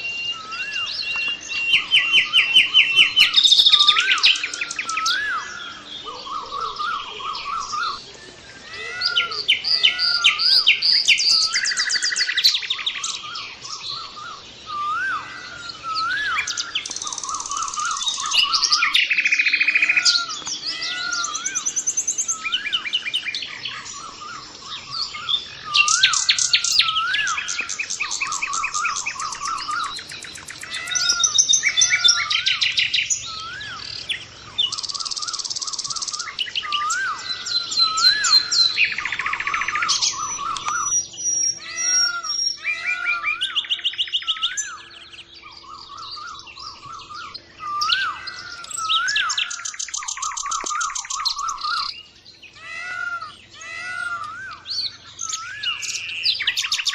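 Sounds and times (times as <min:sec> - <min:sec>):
small birds chirping and trilling: 0:00.0 - 0:56.9.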